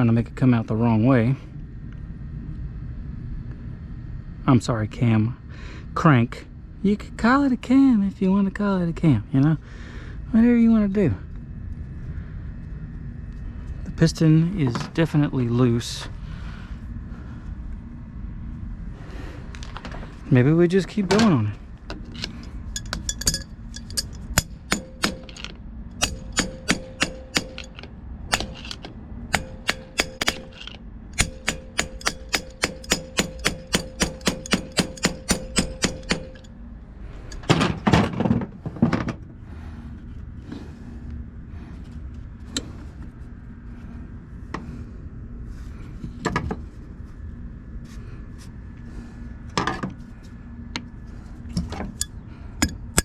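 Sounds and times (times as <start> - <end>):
hammer striking metal compressor: 22.7 - 36.5, 37.3 - 38.0, 51.6 - 53.0.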